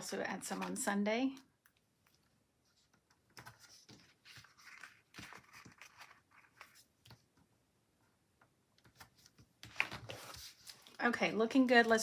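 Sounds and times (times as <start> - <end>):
paper stickers peeling and rustling: 3.3 - 6.8.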